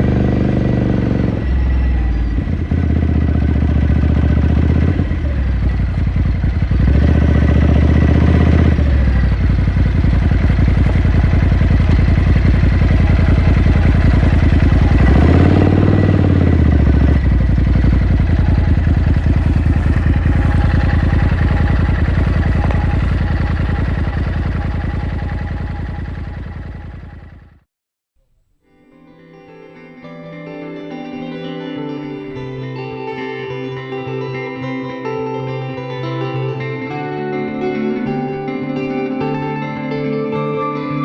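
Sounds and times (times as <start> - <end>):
motorcycle engine revving: 0.0 - 27.7.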